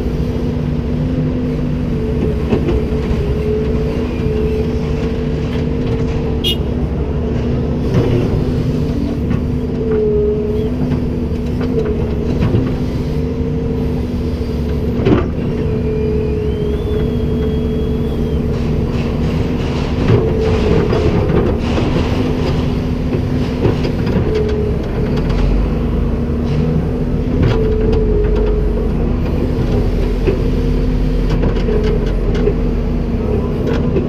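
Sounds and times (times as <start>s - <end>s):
excavator diesel engine running: 0.0s - 34.0s
hydraulic whine: 7.9s - 19.6s.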